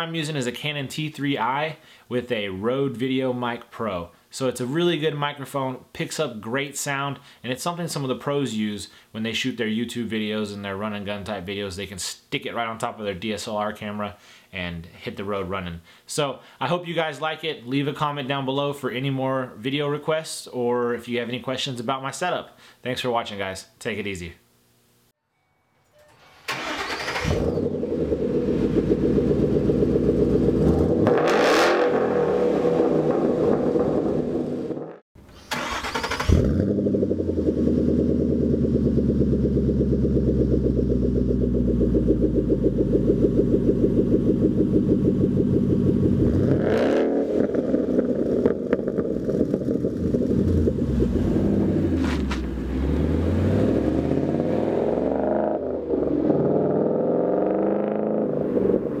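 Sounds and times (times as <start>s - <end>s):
car engine starting up: 26.1s - 34.6s, 35.4s - 59.0s
car engine idling with revs: 36.6s - 47.0s.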